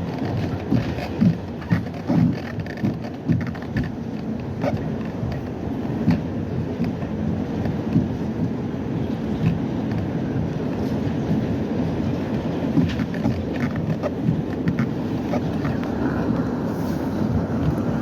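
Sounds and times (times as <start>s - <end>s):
subway car rumbling on rails: 0.0s - 18.0s
knocks and clicks: 12.7s - 15.9s.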